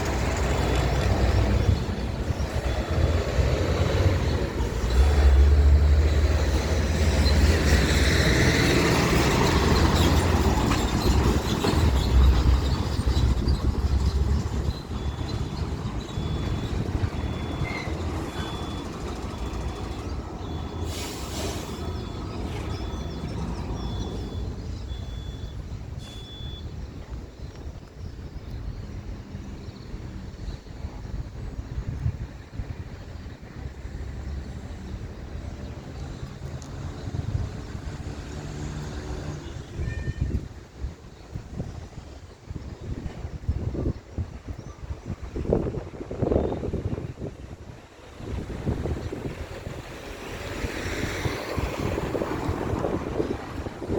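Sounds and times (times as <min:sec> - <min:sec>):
wind on microphone: 0:00.0 - 0:19.4, 0:26.7 - 0:53.9
faint high-pitched beeps: 0:14.8 - 0:20.9, 0:21.9 - 0:27.8.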